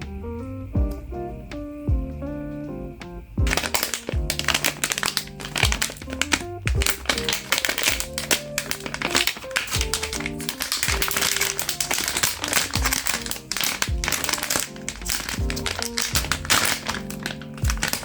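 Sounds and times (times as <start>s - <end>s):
background music: 0.0s - 18.0s
plastic packaging crinkling: 3.5s - 18.0s.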